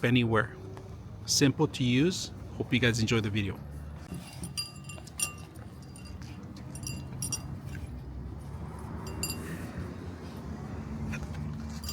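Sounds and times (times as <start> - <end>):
light metallic clinking: 4.1 - 8.0, 9.0 - 9.8, 11.6 - 11.9.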